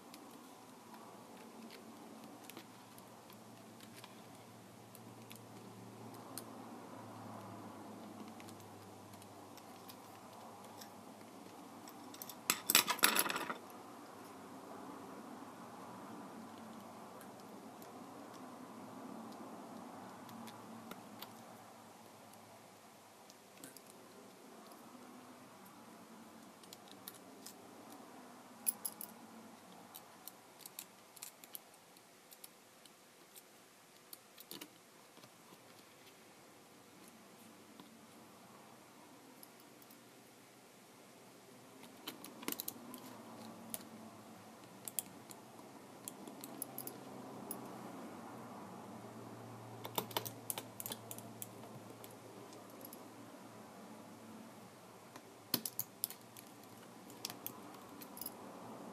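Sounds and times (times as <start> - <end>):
tools clicking and tapping: 8.0 - 13.6, 49.8 - 53.0, 55.2 - 58.4
sharp clicks and light clatter: 49.8 - 53.0.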